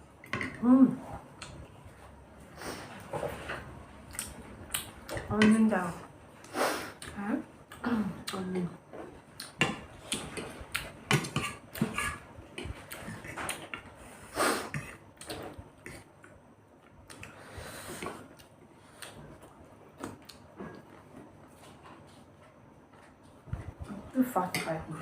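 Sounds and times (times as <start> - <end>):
cutlery scraping against plates: 11.1 - 13.8.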